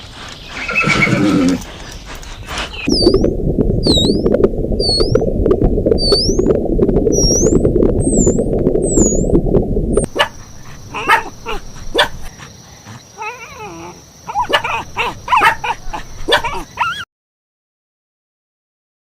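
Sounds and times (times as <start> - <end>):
dog barking: 10.1 - 13.0, 14.3 - 17.0
dog whining: 13.2 - 17.0.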